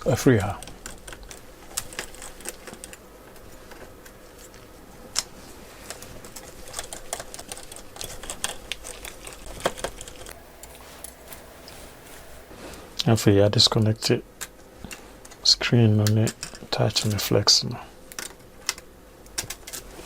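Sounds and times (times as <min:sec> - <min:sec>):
faint steady hum: 0:09.2 - 0:19.4.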